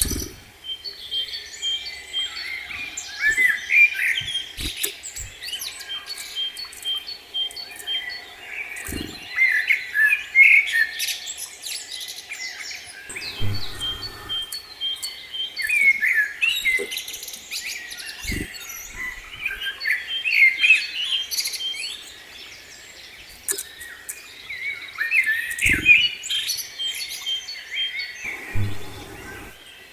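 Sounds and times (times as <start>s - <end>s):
small songbirds singing: 0.0s - 29.9s
soft low thumps: 13.1s - 14.6s, 28.3s - 29.6s.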